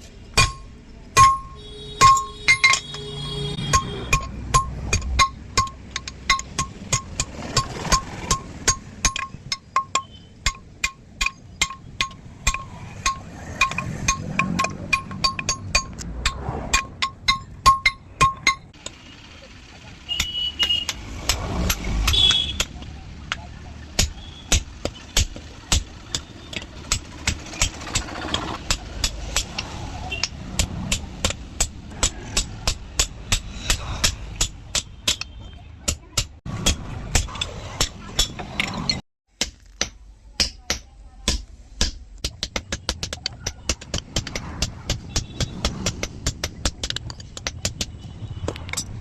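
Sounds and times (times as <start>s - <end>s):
hammer ringing on anvil: 0.4s - 3.0s
low engine-like hum: 18.7s - 22.1s.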